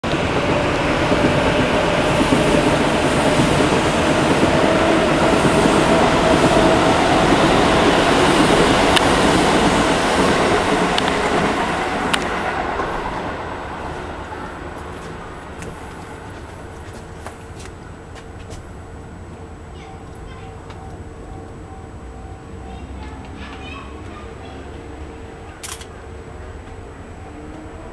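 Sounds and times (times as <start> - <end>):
airship propeller engines droning: 14.3 - 27.3.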